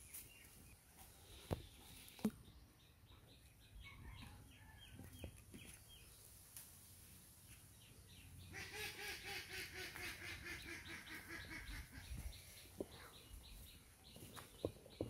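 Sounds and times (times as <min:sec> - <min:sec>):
bird chirping: 0:07.4 - 0:15.0.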